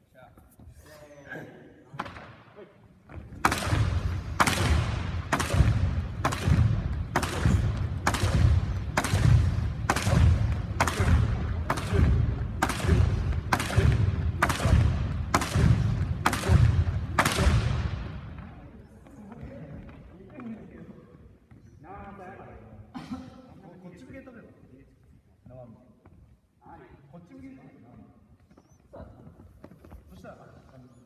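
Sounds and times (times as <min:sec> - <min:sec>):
jump rope slapping floor: 0:03.2 - 0:18.5.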